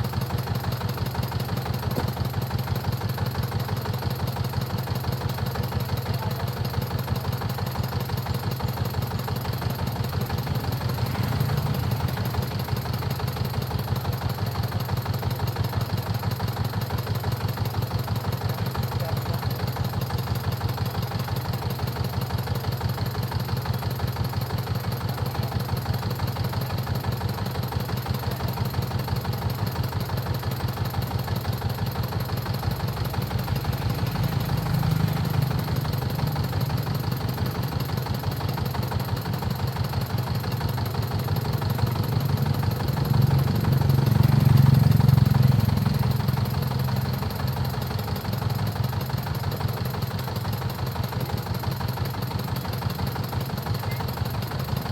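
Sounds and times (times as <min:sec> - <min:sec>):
diesel engine running steadily: 0:00.0 - 0:54.9.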